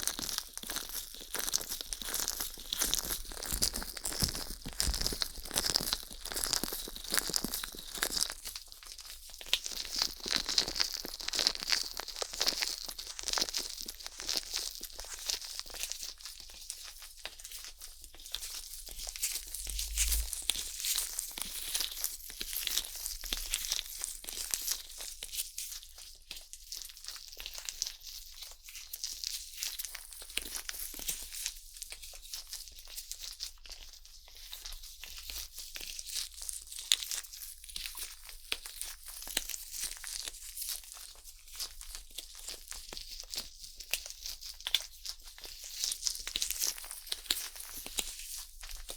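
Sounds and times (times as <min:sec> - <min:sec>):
metal pick scratching microphone: 0:19.0 - 0:20.7.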